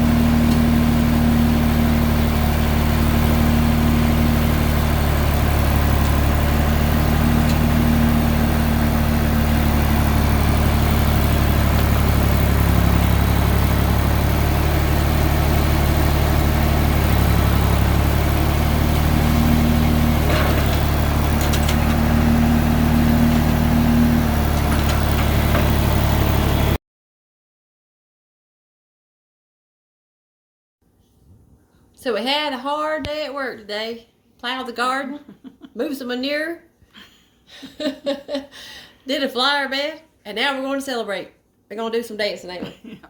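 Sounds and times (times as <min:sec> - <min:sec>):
vehicle engine idling: 0:00.0 - 0:26.8.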